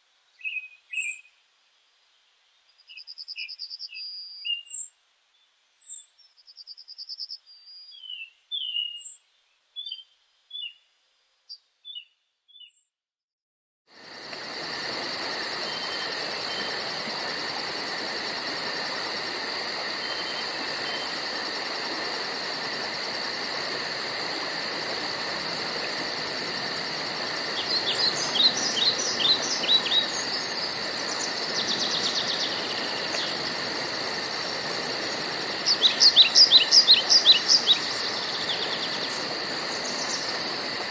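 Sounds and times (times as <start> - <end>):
insects pulsing chorus: 13.9 - 40.9
birds chirping: 27.4 - 33.6, 35.6 - 40.4.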